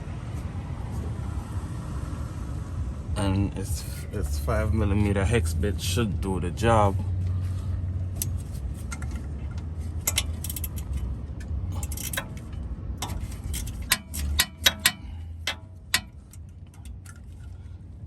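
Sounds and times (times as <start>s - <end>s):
steady low hum: 0.0s - 18.0s
metal tools clinking: 9.9s - 11.1s, 11.7s - 17.6s
sharp metallic knocks: 11.7s - 16.3s.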